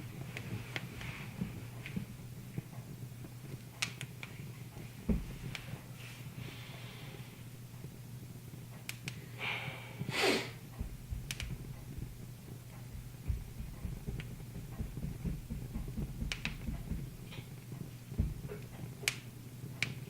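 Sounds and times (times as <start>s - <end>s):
steady low hum: 0.0s - 20.0s
wood fire crackling: 0.0s - 20.0s
sharp pops: 10.7s - 17.6s.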